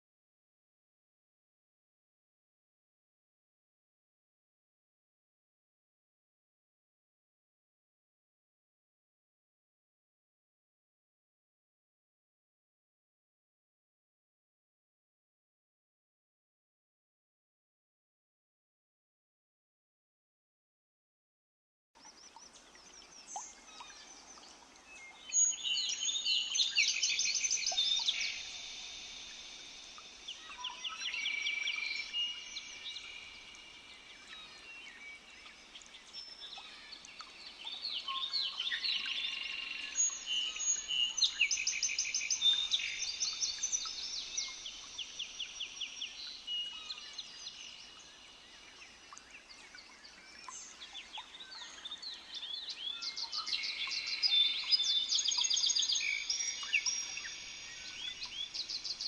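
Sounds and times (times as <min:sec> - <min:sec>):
forest birds trilling and chirping: 0:22.0 - 0:59.0.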